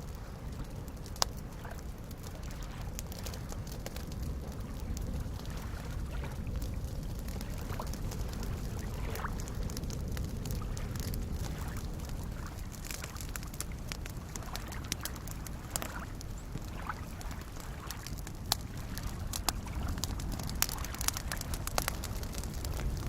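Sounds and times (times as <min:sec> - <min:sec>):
campfire crackling and popping: 0:00.0 - 0:23.0
lake waves lapping: 0:00.1 - 0:23.0.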